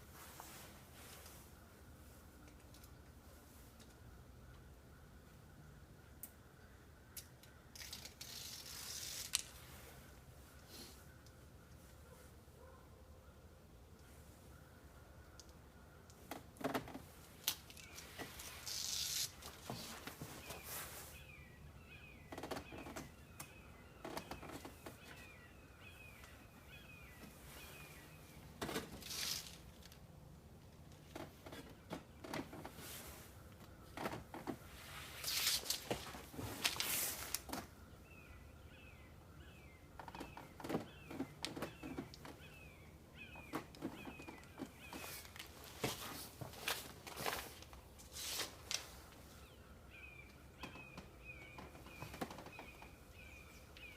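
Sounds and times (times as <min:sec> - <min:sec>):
tape peeling rustle: 0:07.7 - 0:10.0, 0:16.2 - 0:21.2, 0:28.6 - 0:30.0, 0:31.0 - 0:37.7, 0:43.6 - 0:49.2.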